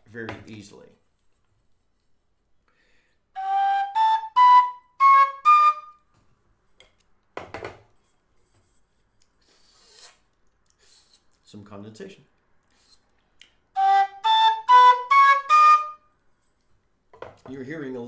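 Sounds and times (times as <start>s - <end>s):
faint breathy hiss: 2.5s - 3.4s, 8.0s - 11.6s, 12.6s - 13.8s
low whistle playing notes: 3.4s - 6.1s, 13.8s - 16.1s.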